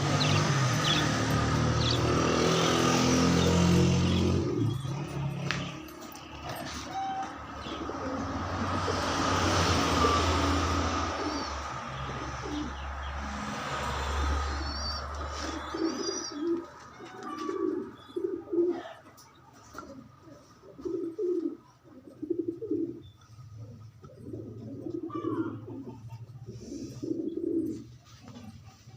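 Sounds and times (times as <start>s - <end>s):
small birds chirping: 0.0s - 7.0s, 14.2s - 27.8s
pigeons cooing: 0.0s - 28.9s.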